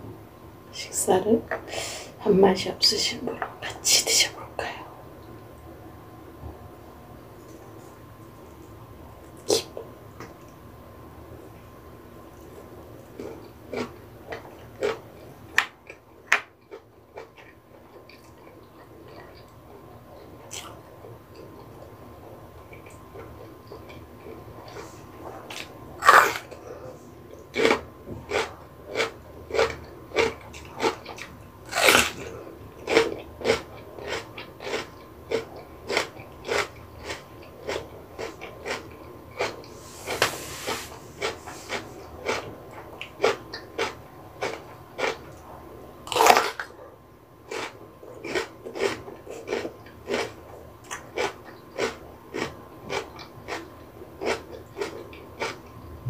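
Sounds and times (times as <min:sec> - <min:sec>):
wet chewing: 0:32.8 - 0:39.8, 0:47.5 - 0:55.7.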